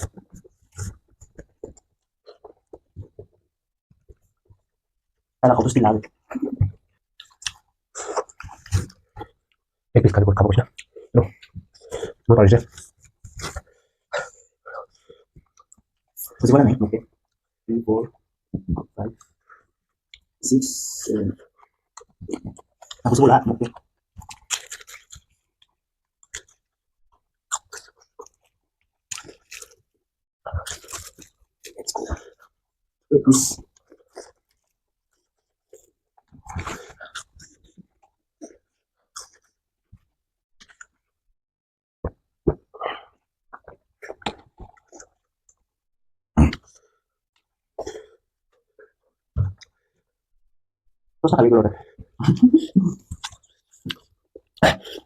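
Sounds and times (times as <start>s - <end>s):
crunchy chewing: 27.5s - 29.8s.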